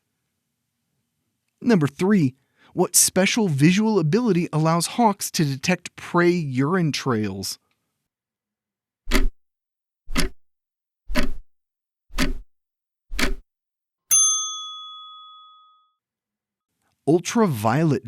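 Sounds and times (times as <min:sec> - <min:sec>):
clock ticking: 0:09.1 - 0:09.4, 0:10.1 - 0:10.4, 0:11.1 - 0:11.4, 0:12.1 - 0:12.5, 0:13.1 - 0:13.4
bell ding: 0:14.1 - 0:15.9.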